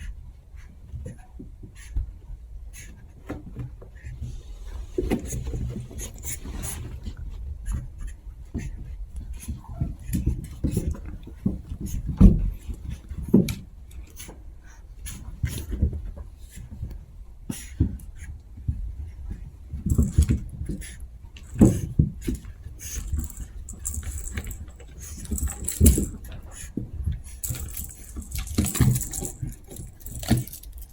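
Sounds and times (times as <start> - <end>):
puppies scuffling: 19.7 - 30.9
small thumps: 19.9 - 20.5, 21.4 - 26.3, 27.4 - 30.9.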